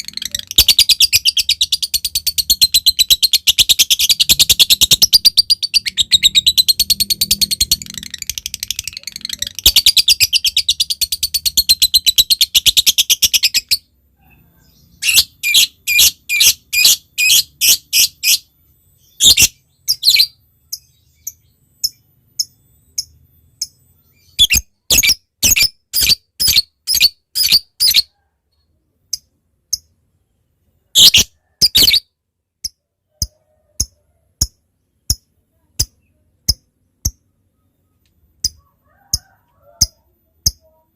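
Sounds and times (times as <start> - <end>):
bird chattering trill: 0.0 - 13.8.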